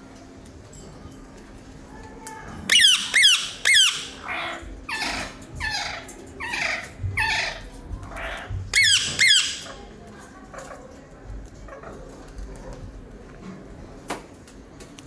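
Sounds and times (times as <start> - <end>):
caged bird squawking: 2.7 - 9.9.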